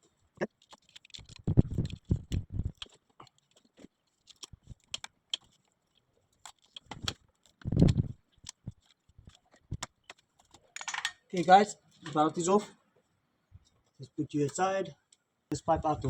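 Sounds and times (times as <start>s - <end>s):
metallic tool clicks and clunks: 9.2s - 11.2s.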